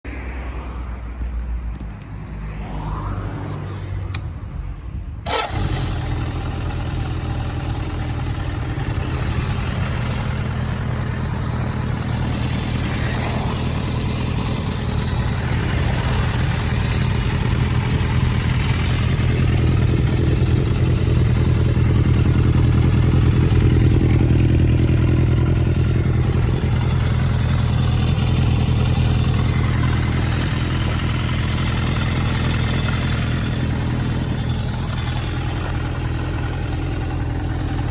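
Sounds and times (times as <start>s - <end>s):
motorcycle engine starting and idling: 4.0s - 4.4s, 5.2s - 37.9s.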